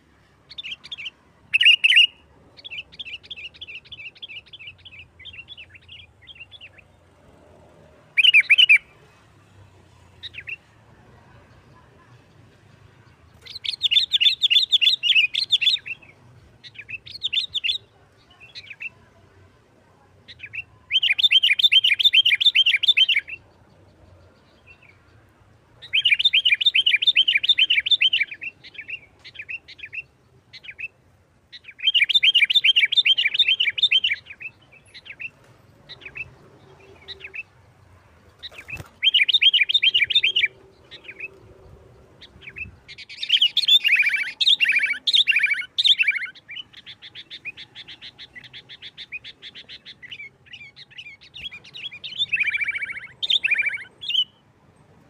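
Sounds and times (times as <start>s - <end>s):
bird chattering trills: 38.4s - 41.3s.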